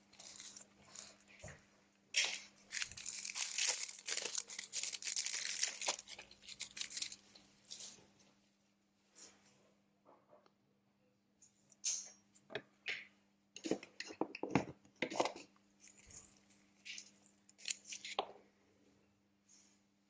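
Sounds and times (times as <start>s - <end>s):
small tools clicking and scraping: 13.6s - 18.2s.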